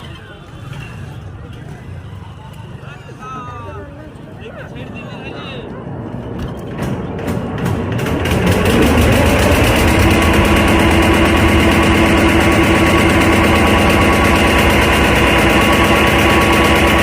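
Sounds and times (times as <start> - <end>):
boat engine running: 6.3 - 17.0.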